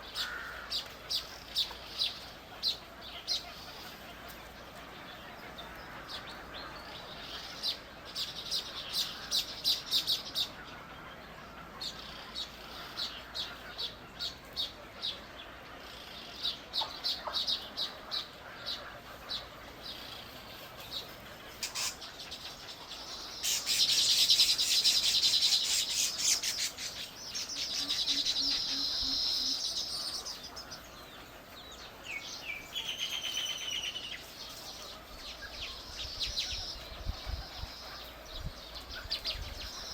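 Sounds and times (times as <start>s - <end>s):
birds chirping: 0.0s - 39.9s
rapid rattling bird call: 18.2s - 31.9s.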